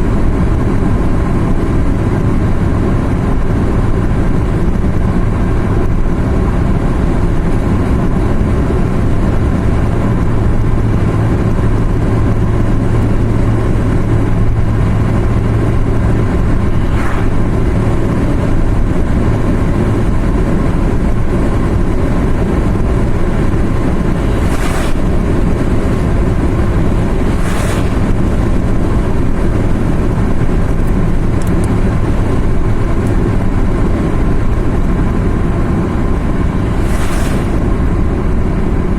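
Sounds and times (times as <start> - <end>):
car engine and tyre noise: 0.0 - 38.9
low hum: 10.4 - 20.3, 21.7 - 38.9
short whooshes: 16.0 - 18.4, 23.8 - 29.3, 35.8 - 38.5.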